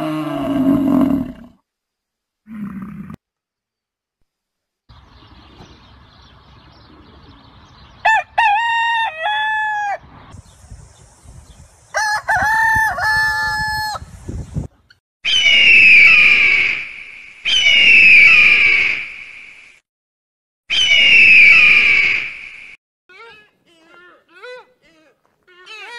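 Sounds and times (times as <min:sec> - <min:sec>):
rooster crowing: 0:08.1 - 0:10.1, 0:12.0 - 0:14.0
shrill animal calls: 0:15.2 - 0:16.8, 0:17.5 - 0:19.0, 0:20.7 - 0:22.3.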